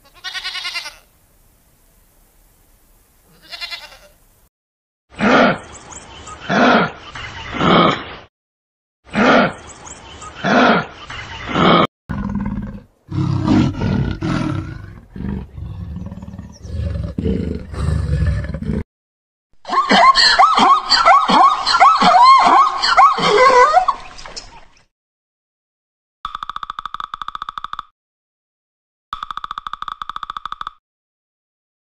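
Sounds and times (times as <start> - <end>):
big cat growling: 11.5 - 18.8.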